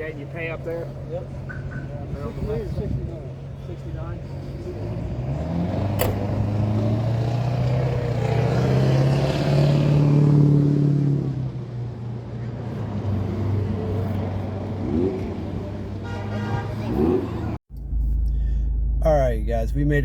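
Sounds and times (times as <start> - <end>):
sharp click: 5.9 - 6.3.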